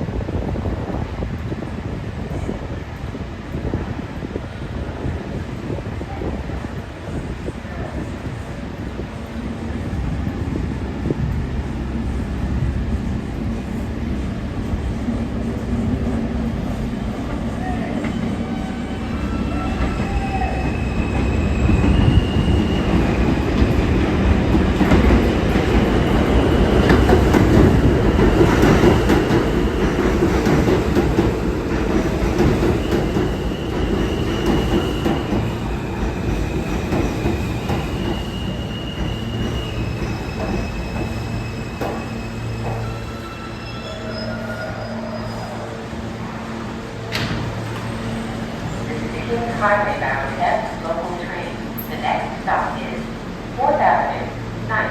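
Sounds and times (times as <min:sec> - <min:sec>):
subway train rumble: 0:00.0 - 0:54.9
wheels squealing: 0:36.3 - 0:46.2.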